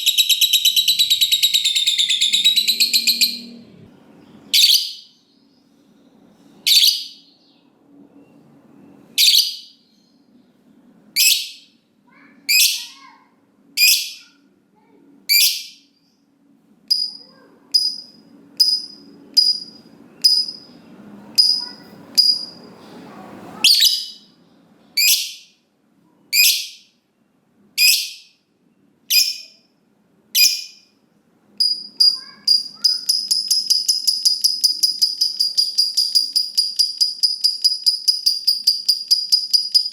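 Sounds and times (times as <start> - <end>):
lovebird shrill calls: 0.0 - 3.5
lovebird chattering trill: 0.0 - 3.6, 9.2 - 9.7, 21.4 - 22.6, 29.1 - 29.6, 30.4 - 30.9, 31.6 - 39.9.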